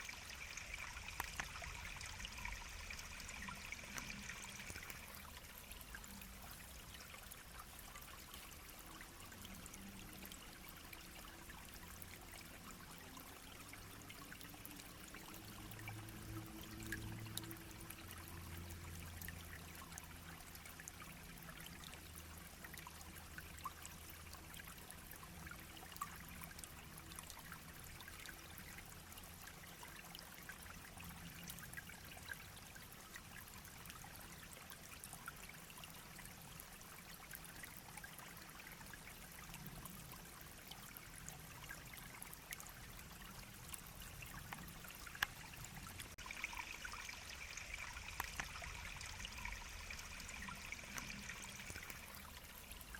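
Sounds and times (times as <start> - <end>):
brook babbling over stones: 0.0 - 52.9.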